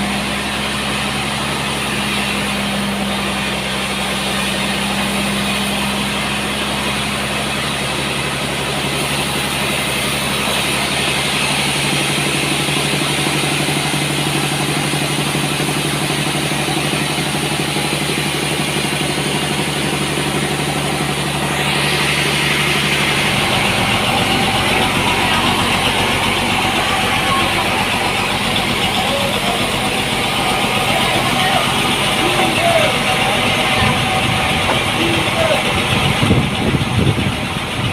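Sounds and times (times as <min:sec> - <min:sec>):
sawmill engine hum: 0:00.0 - 0:37.9.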